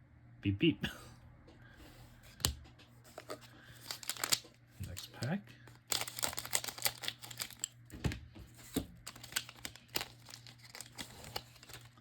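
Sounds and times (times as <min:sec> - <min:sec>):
card pack wrapper crinkling: 0:03.1 - 0:07.8, 0:08.6 - 0:12.0.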